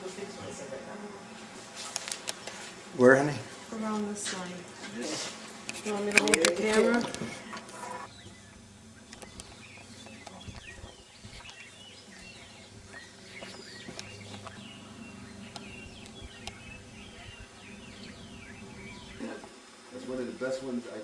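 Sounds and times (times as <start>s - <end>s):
birds chirping: 0.0s - 21.0s
faint steady hum: 0.0s - 21.0s.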